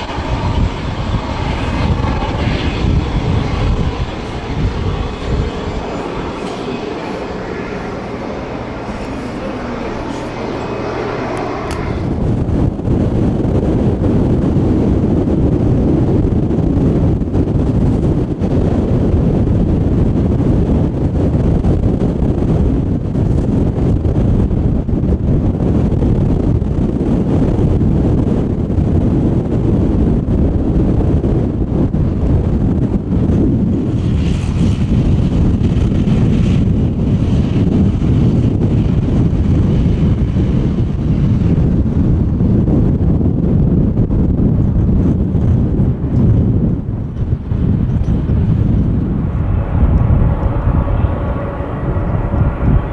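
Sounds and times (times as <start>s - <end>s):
higher wind hiss: 0.0s - 12.6s
wind buffeting microphone: 0.0s - 52.9s.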